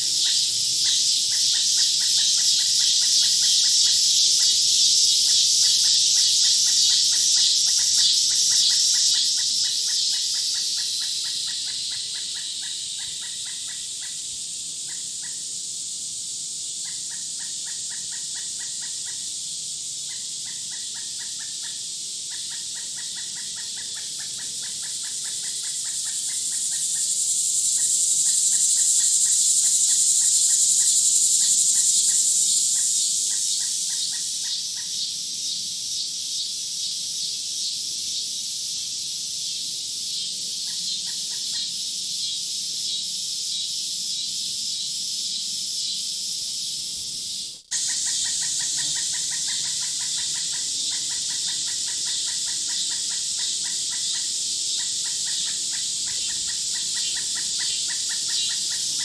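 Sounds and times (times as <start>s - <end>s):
insect chorus: 0.0s - 59.0s.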